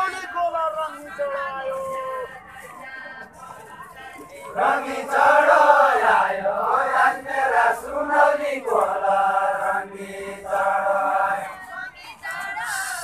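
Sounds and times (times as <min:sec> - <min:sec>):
men singing in unison: 0:04.2 - 0:11.6.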